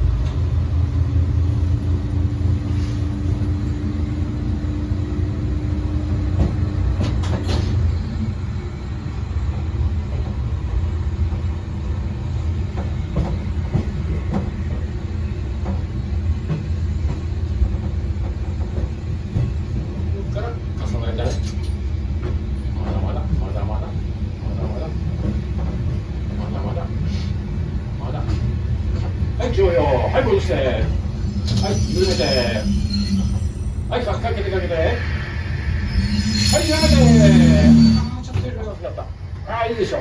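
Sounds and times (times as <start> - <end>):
diesel railcar rumbling: 0.0 - 40.0
droning tone: 34.6 - 38.2.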